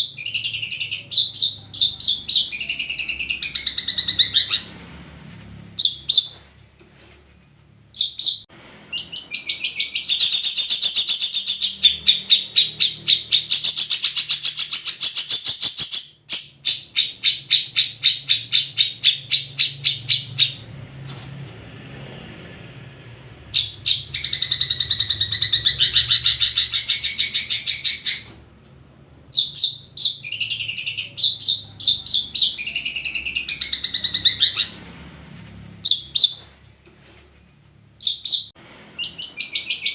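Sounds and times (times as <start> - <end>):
bird chattering song: 0.0 - 4.8, 5.8 - 6.4, 8.0 - 20.6, 23.5 - 28.4, 29.3 - 34.8, 35.8 - 36.4, 38.0 - 39.9.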